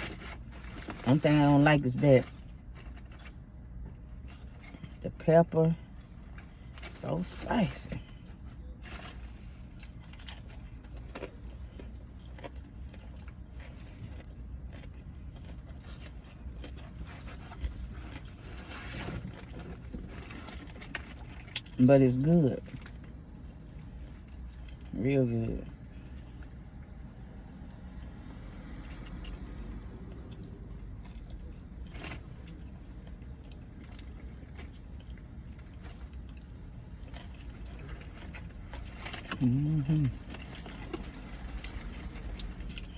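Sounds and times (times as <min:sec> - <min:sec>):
crunchy rustle: 0:00.0 - 0:05.0, 0:05.9 - 0:21.8, 0:30.2 - 0:42.9
steady low hum: 0:00.0 - 0:42.9
person chewing food: 0:08.0 - 0:21.8, 0:25.7 - 0:42.9.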